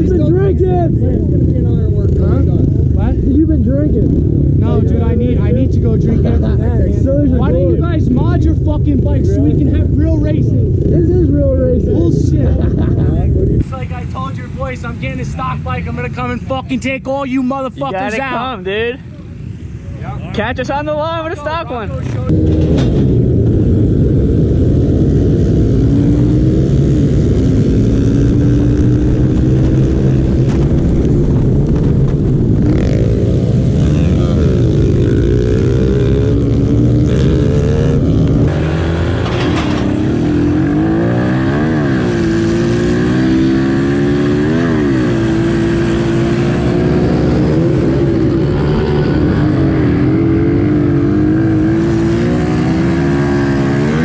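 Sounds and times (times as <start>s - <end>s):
small motorbike engines revving: 21.8s - 54.0s.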